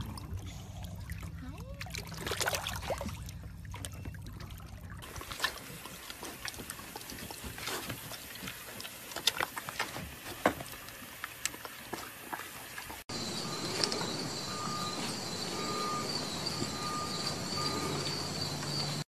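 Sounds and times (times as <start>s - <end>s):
low steady hum: 0.0s - 9.2s, 12.8s - 19.0s
trickling water: 0.0s - 19.0s
pig chomping and smacking: 2.1s - 13.0s.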